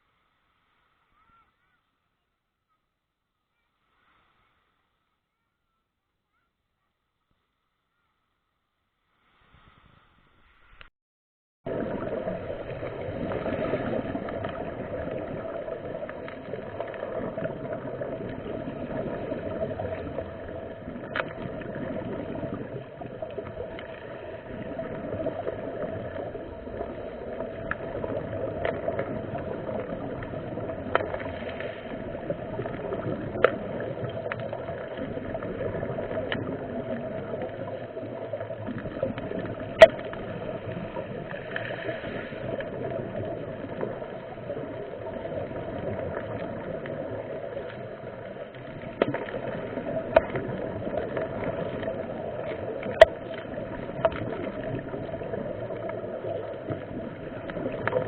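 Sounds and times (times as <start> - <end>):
muffled rushing water: 11.7 - 58.0.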